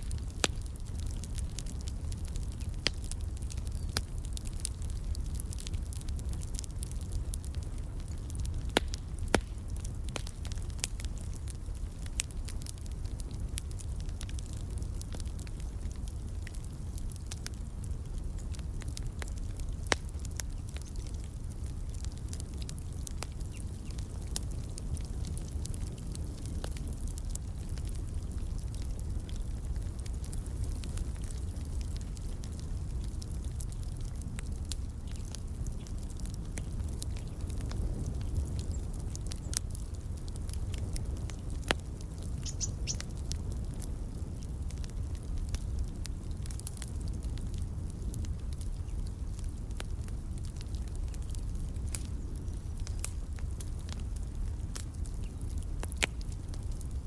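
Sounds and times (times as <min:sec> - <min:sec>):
fire popping and snapping: 0:00.0 - 0:57.0
rumble of flames: 0:00.0 - 0:57.0
high bird chirps: 0:42.4 - 0:43.0.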